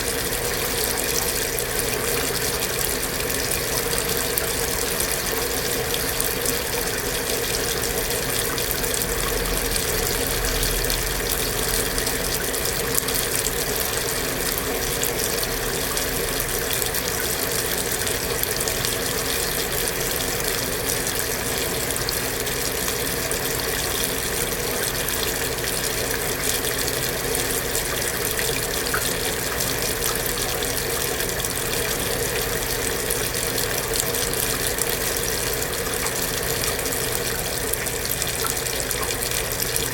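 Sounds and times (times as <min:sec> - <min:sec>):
water running into washing machine: 0:00.0 - 0:39.9.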